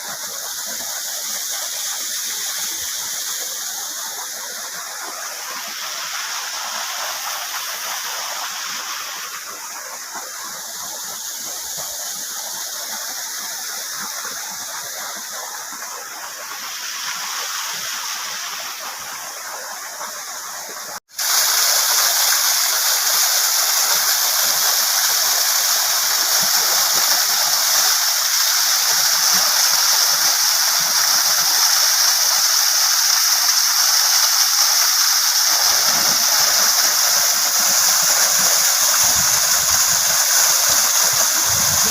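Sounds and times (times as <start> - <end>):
waterfall rushing and splashing: 0.0 - 41.9.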